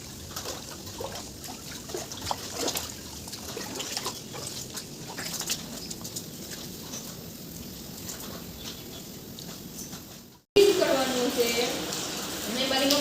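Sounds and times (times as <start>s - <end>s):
rainwater dripping and trickling: 0.0s - 13.0s
steady wet hiss: 0.0s - 13.0s.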